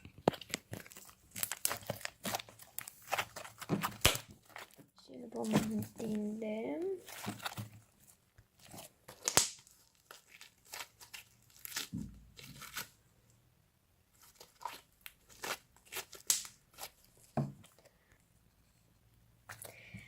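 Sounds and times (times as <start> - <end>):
slime crackling and popping: 0.0 - 4.8, 8.6 - 12.9, 14.4 - 17.0.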